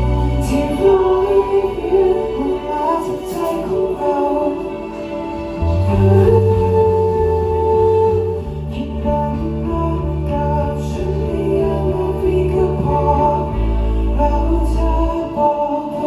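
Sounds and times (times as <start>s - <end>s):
held bass notes: 0.0s - 15.4s
live band sustained chords: 0.0s - 16.0s.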